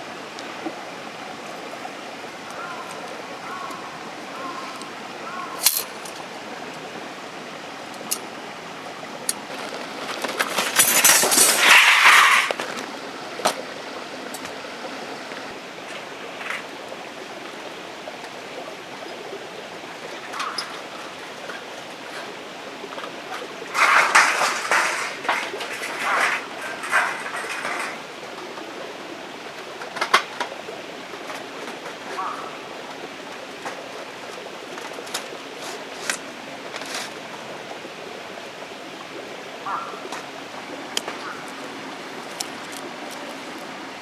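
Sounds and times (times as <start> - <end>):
rain hissing: 0.0 - 44.0
camp gear clinking: 5.3 - 6.3, 9.2 - 13.6, 23.7 - 28.1
rustling handling noise: 9.4 - 13.7, 23.7 - 28.1.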